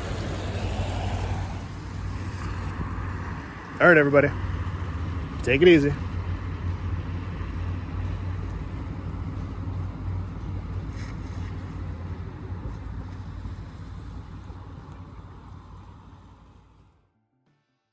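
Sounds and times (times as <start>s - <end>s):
passing cars rumbling: 0.0s - 17.0s.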